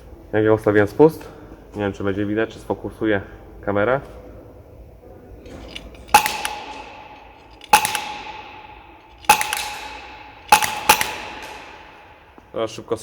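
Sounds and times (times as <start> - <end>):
metallic ring: 5.5 - 12.4
airsoft gun shots: 6.1 - 12.5.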